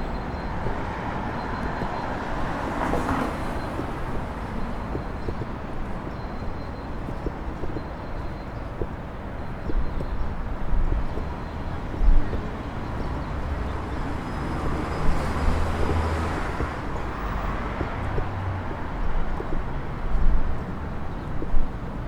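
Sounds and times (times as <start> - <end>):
car or bus passing: 0.0 - 5.3, 12.5 - 20.1
low rumble of vehicles: 0.0 - 22.0.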